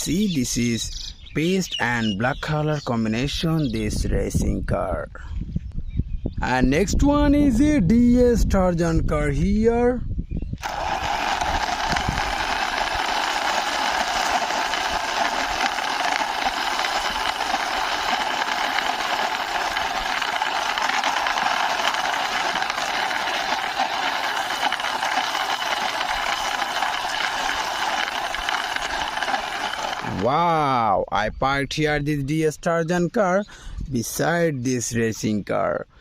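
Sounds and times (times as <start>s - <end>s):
toy car wheels whirring rattle: 10.6s - 30.3s.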